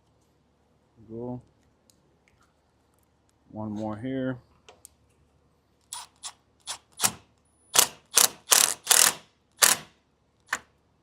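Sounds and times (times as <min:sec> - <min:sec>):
power drill driving screw: 0:05.9 - 0:09.9.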